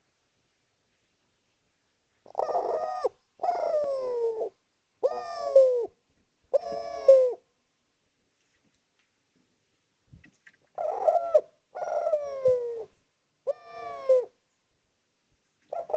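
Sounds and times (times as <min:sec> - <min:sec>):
dove cooing: 0:02.2 - 0:07.5, 0:10.7 - 0:14.4, 0:15.7 - 0:15.9.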